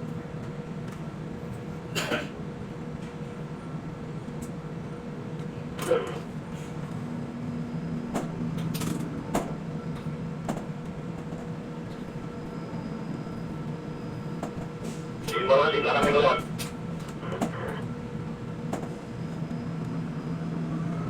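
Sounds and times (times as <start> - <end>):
crane machinery humming: 2.5 - 21.0
faint machine whine: 4.5 - 9.0, 11.6 - 14.4, 15.2 - 21.0.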